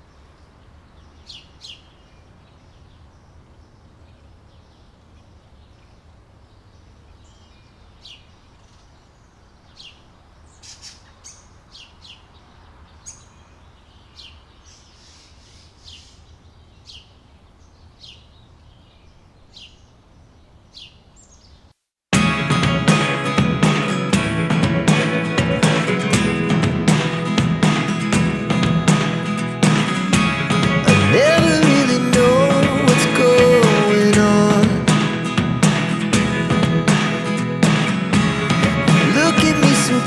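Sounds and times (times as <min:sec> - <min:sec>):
small birds chirping: 0:00.0 - 0:21.8.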